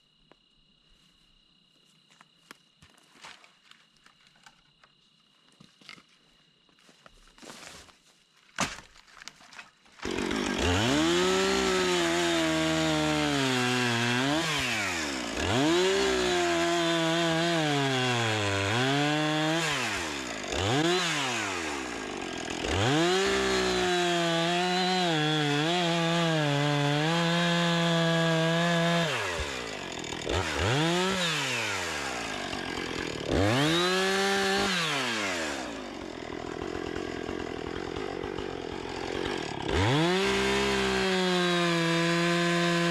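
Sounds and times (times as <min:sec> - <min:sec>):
chainsaw revving: 0:10.0 - 0:42.9.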